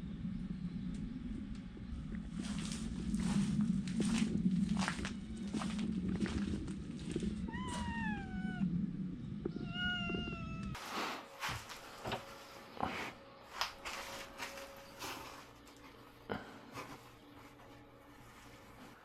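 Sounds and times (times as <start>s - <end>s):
low hum: 0.0s - 19.0s
cat meowing: 7.5s - 8.7s, 9.5s - 10.8s.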